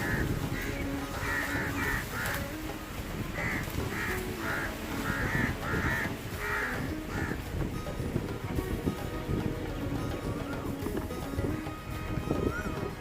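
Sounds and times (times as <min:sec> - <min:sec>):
bird harsh calls: 0:00.0 - 0:02.6, 0:03.2 - 0:07.5
wind rumbling on microphone: 0:00.0 - 0:13.0.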